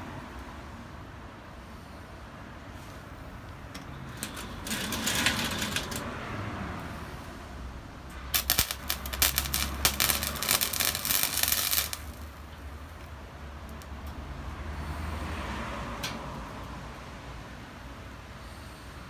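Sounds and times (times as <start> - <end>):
welding arc crackling: 4.2 - 6.0, 8.3 - 14.0.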